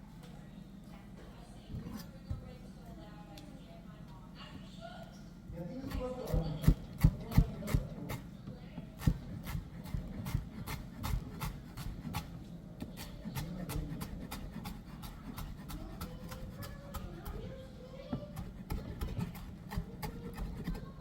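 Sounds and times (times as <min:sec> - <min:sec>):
rubbing and scraping: 0:13.0 - 0:17.4.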